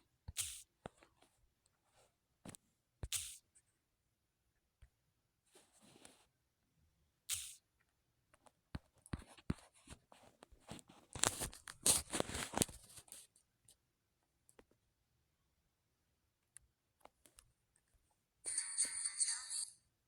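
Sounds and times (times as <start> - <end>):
crackling and rustling handling noise: 8.4 - 13.8.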